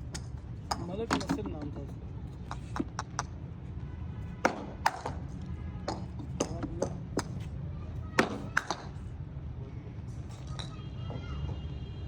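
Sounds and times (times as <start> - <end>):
cricket balls struck by bats: 0.0 - 3.4, 4.4 - 7.5, 8.2 - 9.1.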